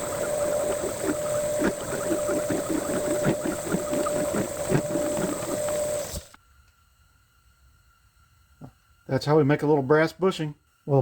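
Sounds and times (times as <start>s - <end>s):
metal lathe whining: 0.0s - 6.4s
tool scraping and chattering: 0.0s - 6.4s.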